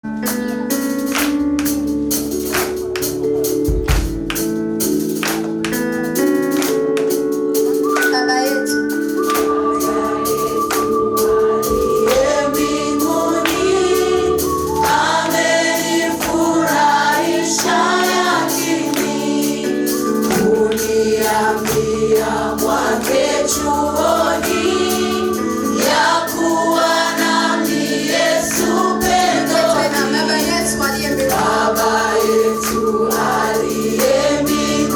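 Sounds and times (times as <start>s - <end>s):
instrumental accompaniment with beat: 0.0s - 34.9s
gospel choir singing: 8.8s - 34.9s.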